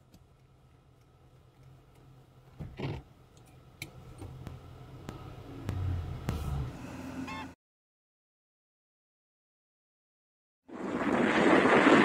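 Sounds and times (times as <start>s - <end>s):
car engine hum from cabin: 0.0s - 7.6s.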